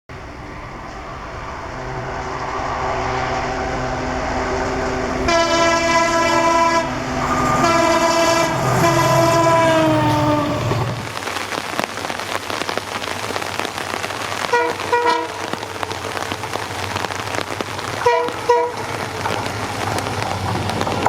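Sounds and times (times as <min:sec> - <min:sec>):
diesel locomotive engine: 0:00.1 - 0:21.0
train horn blasts: 0:00.2 - 0:11.1, 0:14.4 - 0:15.6, 0:18.0 - 0:18.9.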